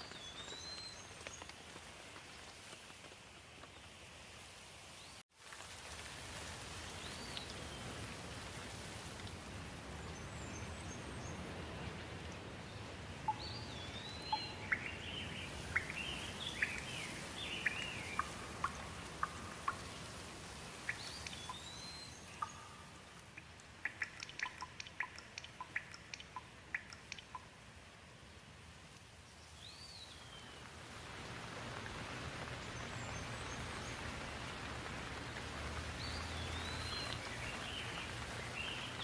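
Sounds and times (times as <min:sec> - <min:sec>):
steady rain: 0:00.0 - 0:39.0
bird singing: 0:13.3 - 0:20.0, 0:20.9 - 0:23.0, 0:36.0 - 0:39.0.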